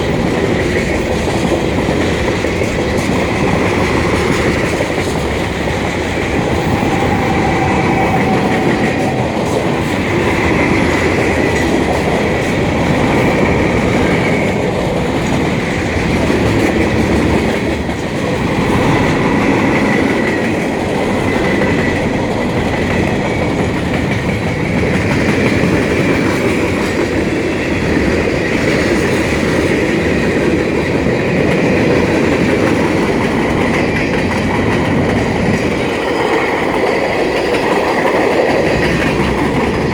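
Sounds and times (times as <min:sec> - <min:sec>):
train wheels clattering on rail: 0:00.0 - 0:39.9
high wavering tone: 0:06.4 - 0:09.8.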